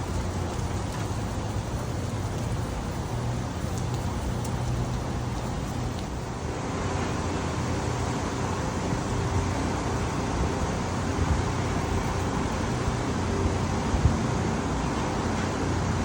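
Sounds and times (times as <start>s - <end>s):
heavy rain hissing: 0.0s - 6.8s.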